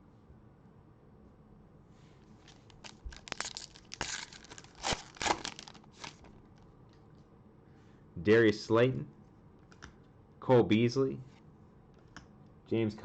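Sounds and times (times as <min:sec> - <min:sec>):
foil wrapper tearing and crinkling: 0:02.4 - 0:06.3.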